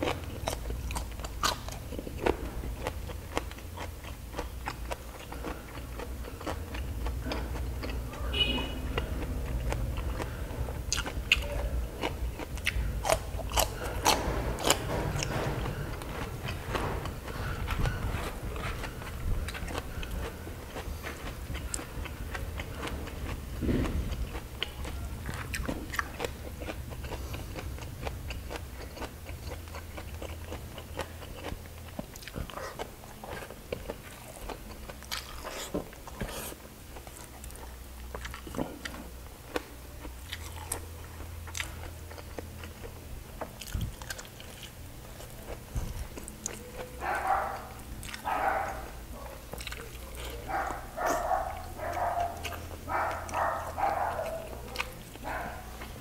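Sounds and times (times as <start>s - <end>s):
person chewing cucumber: 0.0s - 56.0s.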